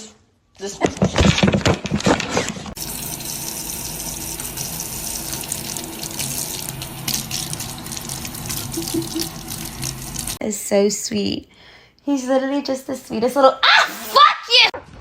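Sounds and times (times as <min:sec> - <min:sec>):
water running from a tap: 0:02.8 - 0:10.4.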